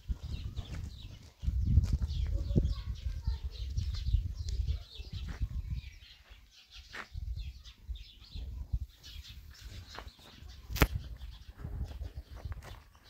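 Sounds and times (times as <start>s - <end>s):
footsteps on concrete steps: 0.0s - 4.6s, 6.2s - 7.2s, 9.8s - 13.0s
small birds chirping: 0.0s - 13.0s.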